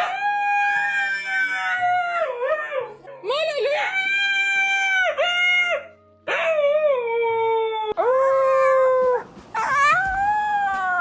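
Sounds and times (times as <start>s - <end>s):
dog howling: 3.7s - 11.0s.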